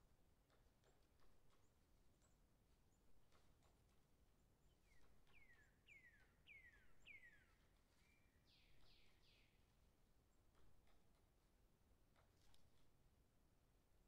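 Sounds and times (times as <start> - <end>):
faint bird whistling: 4.9 - 9.5.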